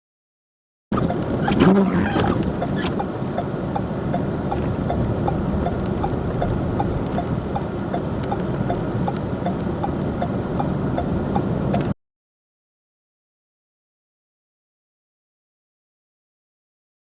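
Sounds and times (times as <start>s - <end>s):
vehicle engine and road noise: 0.9s - 12.0s
regular ticking: 2.3s - 11.9s.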